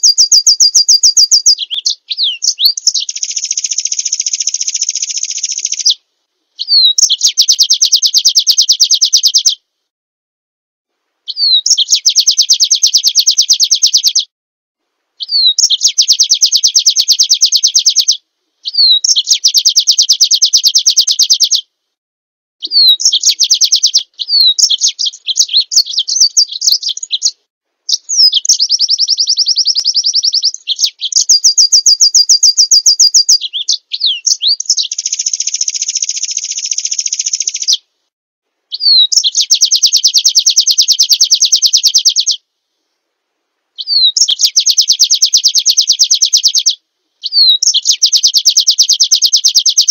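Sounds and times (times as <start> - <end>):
bird chattering: 0.0 - 6.0, 6.6 - 9.6, 22.6 - 37.8, 38.8 - 42.4
songbird trilling: 0.0 - 6.0, 6.6 - 9.6, 11.3 - 14.3, 15.2 - 21.6, 22.6 - 37.8, 38.7 - 42.4, 43.8 - 49.9.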